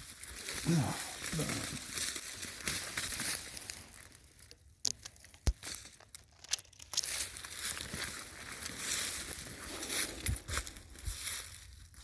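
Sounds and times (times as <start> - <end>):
footsteps crunching dry leaves: 0.0 - 4.5, 6.9 - 12.0
twigs clicking and snapping: 0.0 - 10.8.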